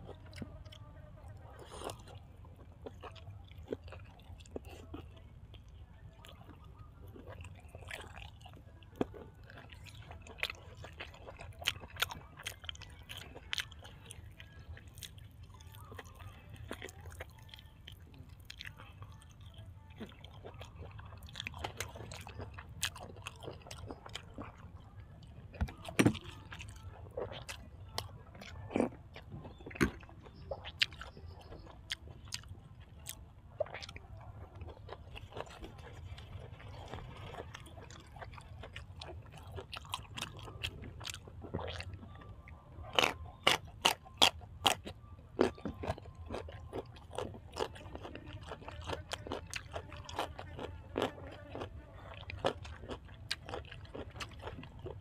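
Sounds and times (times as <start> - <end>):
person chewing and eating: 0.0 - 55.0.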